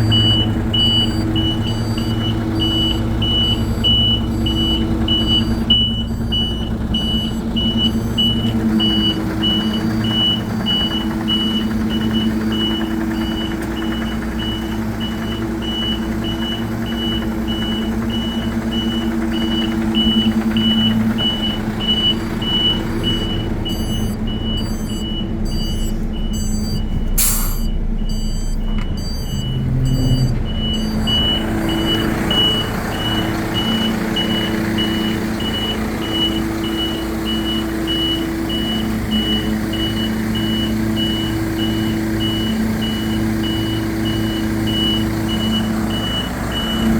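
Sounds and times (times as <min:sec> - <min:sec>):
diesel truck engine running: 0:00.0 - 0:46.9
reversing alarm beeping: 0:00.0 - 0:46.9
air hiss: 0:27.2 - 0:27.7.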